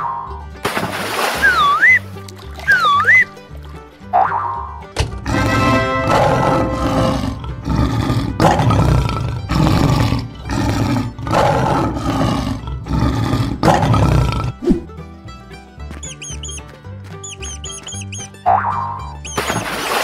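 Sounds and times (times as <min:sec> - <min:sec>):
children's background music: 0:00.0 - 0:11.8
cartoon lion roar: 0:05.2 - 0:14.8.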